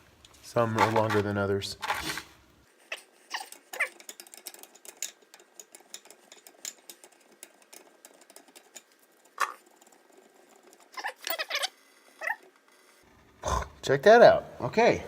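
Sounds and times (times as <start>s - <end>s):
hand tools clicking on metal: 3.3s - 11.4s.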